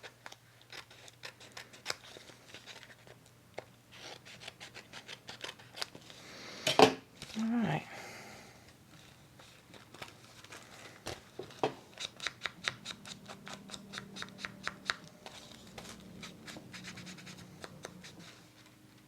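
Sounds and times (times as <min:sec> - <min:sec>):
scissors snipping paper: 0:00.0 - 0:05.9, 0:11.9 - 0:18.3.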